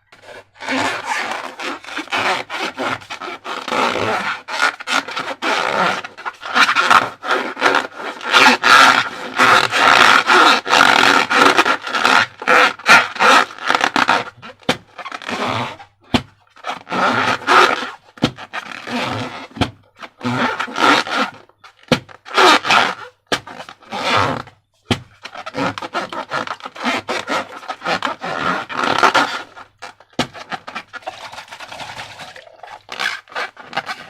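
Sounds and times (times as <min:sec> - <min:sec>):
slime squelching: 0:30.9 - 0:34.0.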